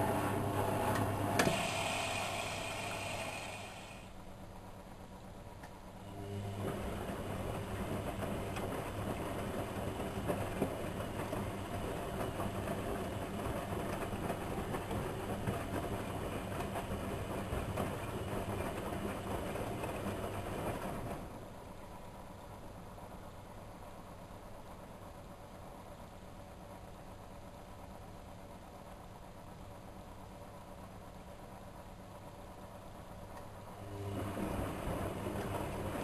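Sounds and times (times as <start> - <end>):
washing machine churning: 0.0 - 4.1, 6.0 - 21.8, 33.1 - 36.0.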